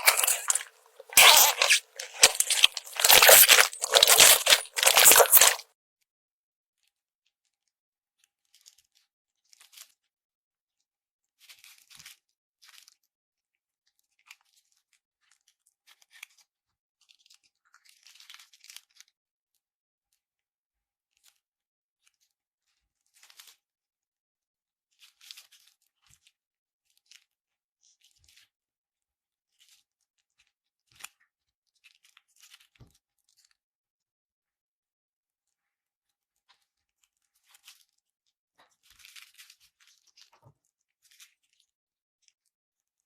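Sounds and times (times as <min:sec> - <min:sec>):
slime crackling by hand: 0:00.0 - 0:05.6.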